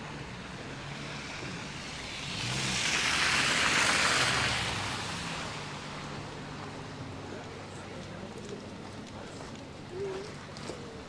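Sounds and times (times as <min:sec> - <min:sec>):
vehicle tyre hiss on snow: 0:00.9 - 0:06.1.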